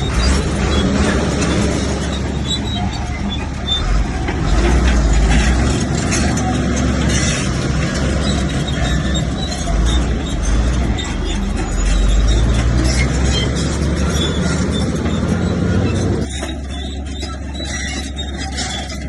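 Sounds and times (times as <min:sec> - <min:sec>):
bulldozer diesel engine rumbling: 0:00.0 - 0:19.0.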